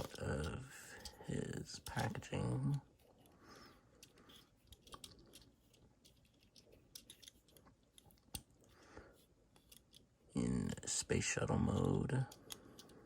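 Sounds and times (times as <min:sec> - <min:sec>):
plastic toy clicks and scrapes: 0:00.0 - 0:08.5.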